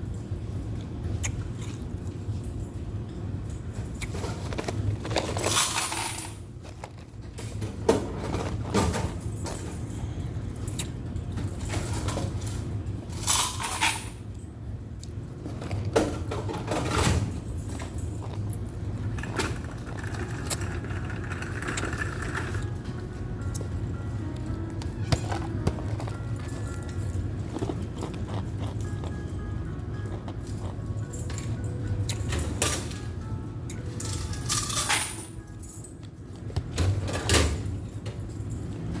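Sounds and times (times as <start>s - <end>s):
laundromat machines humming: 0.0s - 39.0s
ice clinking: 19.2s - 22.7s
ice crunching in a cup: 25.3s - 28.8s.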